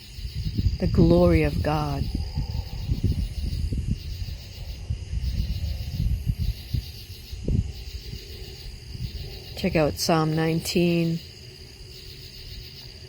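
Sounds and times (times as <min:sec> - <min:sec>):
night insects chirring: 0:00.0 - 0:13.0.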